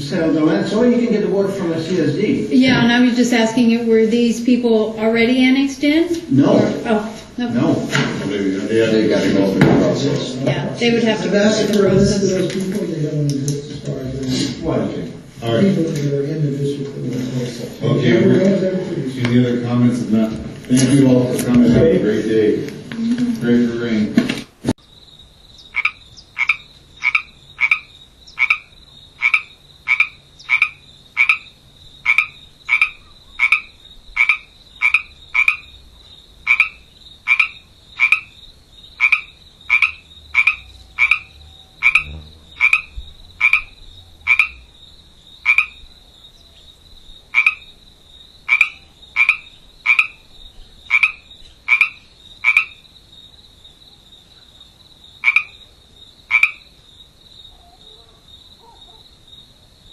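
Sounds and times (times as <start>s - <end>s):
rhythmic animal calls: 25.3s - 56.8s
high-pitched whine: 40.0s - 44.8s.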